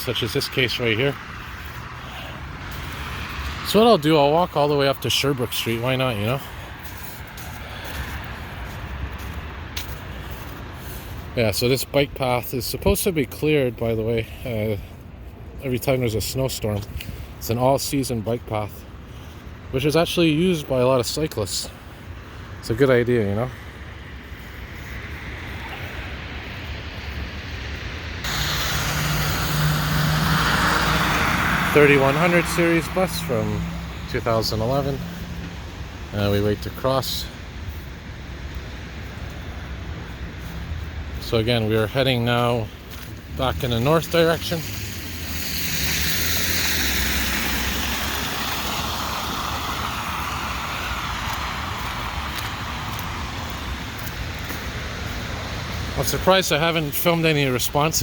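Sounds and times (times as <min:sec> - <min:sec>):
city street traffic rumbling: 0:00.0 - 0:58.0
vehicle engine hum: 0:22.5 - 0:58.0.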